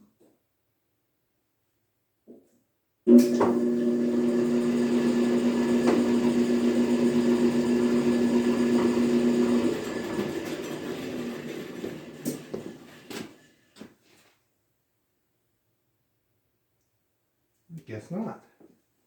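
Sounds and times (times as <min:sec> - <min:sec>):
electric motor humming and winding down: 0:03.1 - 0:12.9.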